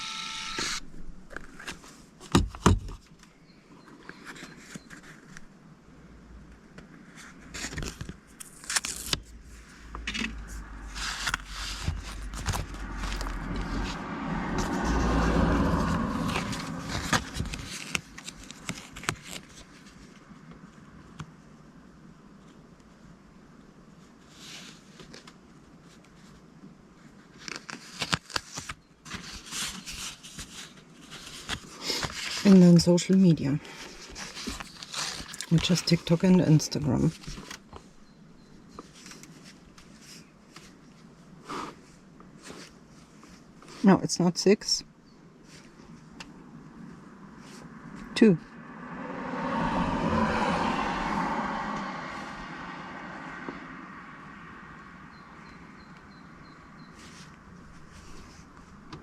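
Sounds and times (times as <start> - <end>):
rustles scrapes and clicks: 6.9 - 20.3, 27.2 - 36.2.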